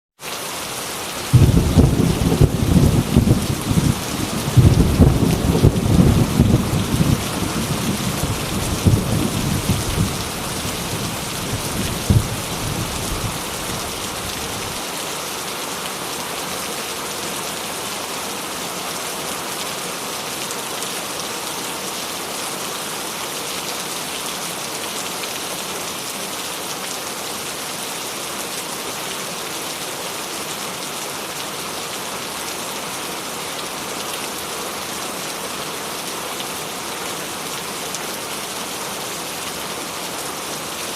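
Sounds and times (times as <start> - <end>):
rain falling: 0.2 - 40.9
thunder clap: 1.3 - 13.4
thunder rumbling: 1.3 - 14.8.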